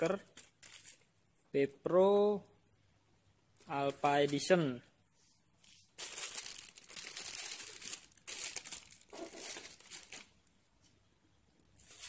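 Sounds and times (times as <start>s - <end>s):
plastic bags crinkling: 0.0s - 1.1s, 5.6s - 10.4s, 11.8s - 12.0s.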